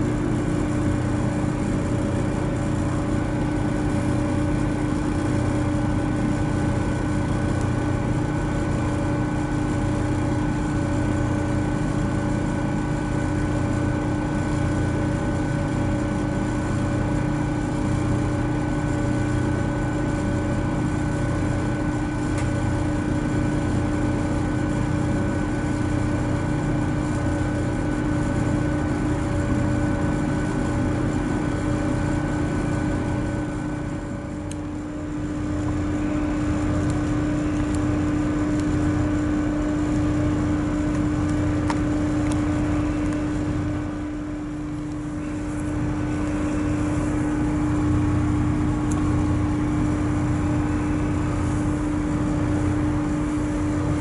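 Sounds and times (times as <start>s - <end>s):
humming held tones: 24.6s - 54.0s
train engine drone: 29.3s - 54.0s.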